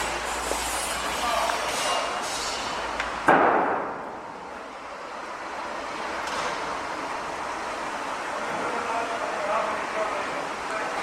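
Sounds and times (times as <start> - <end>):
construction site background noise: 0.0 - 11.0
loud bang: 3.2 - 4.0.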